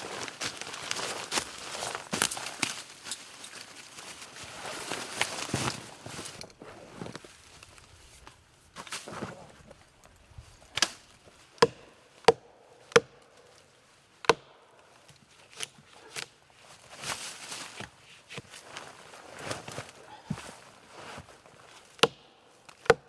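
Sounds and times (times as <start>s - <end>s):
rustling and scraping: 0.0s - 11.6s, 15.0s - 22.0s
blade chopping wood: 11.6s - 13.2s, 22.0s - 23.0s.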